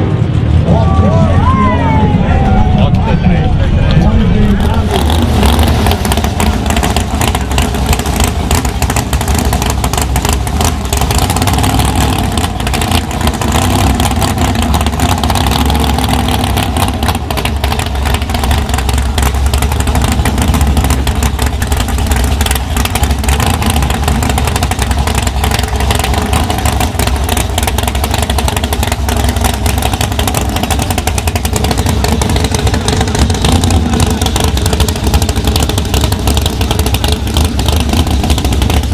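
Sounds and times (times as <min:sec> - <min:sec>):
drag racing engine crackling: 0:02.0 - 0:38.9.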